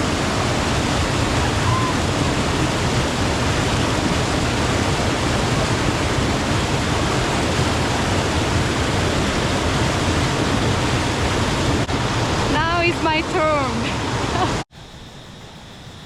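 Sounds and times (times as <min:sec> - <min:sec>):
water rushing over rocks: 0:00.0 - 0:14.6.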